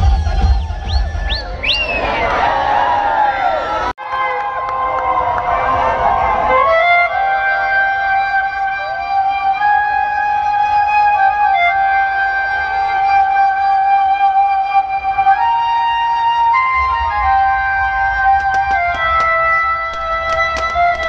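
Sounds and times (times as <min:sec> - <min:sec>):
deep bass: 0:00.0 - 0:02.0
flute melody over loudspeakers: 0:00.0 - 0:02.4, 0:04.0 - 0:21.0.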